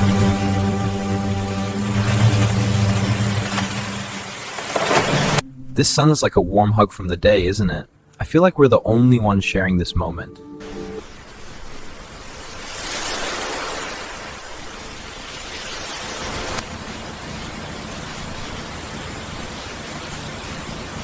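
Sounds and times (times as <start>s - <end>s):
ocean waves washing on shore: 0.0s - 5.4s, 10.6s - 21.0s.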